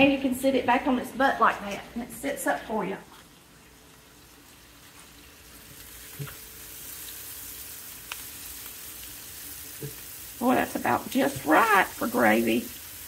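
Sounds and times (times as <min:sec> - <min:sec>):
vegetables sizzling in a skillet: 0:03.7 - 0:13.0.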